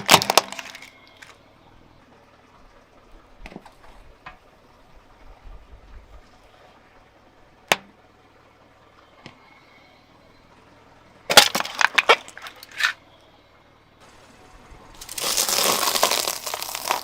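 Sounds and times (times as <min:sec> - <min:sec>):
car tire crushing something brittle: 0:00.0 - 0:01.4, 0:11.3 - 0:13.0, 0:15.0 - 0:17.0.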